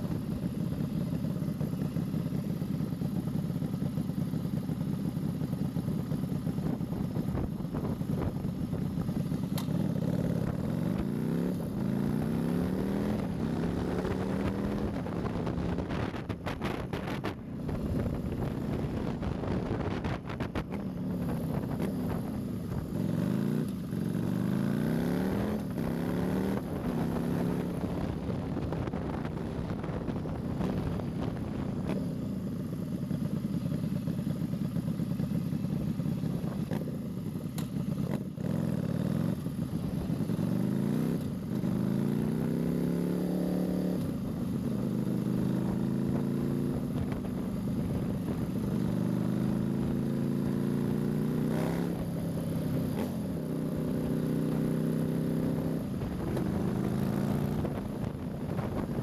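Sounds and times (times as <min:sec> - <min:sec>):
motorcycle engine accelerating: 0:00.0 - 0:59.0
wind noise: 0:13.3 - 0:22.9, 0:55.8 - 0:59.0.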